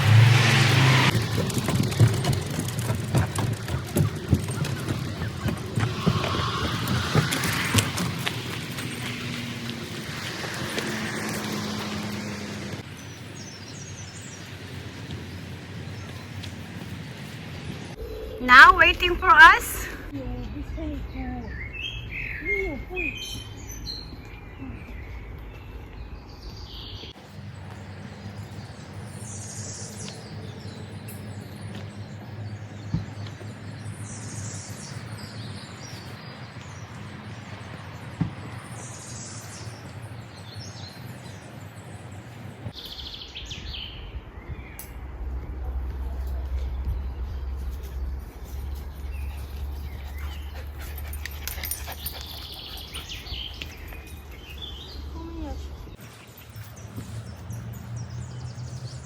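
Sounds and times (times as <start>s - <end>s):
birds chirping: 1.9s - 45.1s, 46.3s - 59.0s
steady low rumble: 17.9s - 21.8s.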